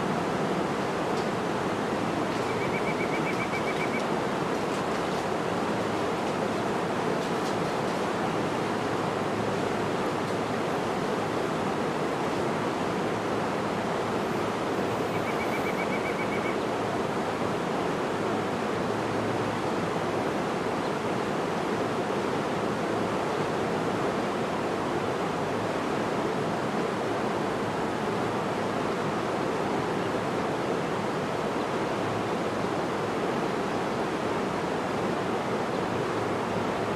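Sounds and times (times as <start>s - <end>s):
bird trill: 2.4s - 4.0s, 15.1s - 16.6s.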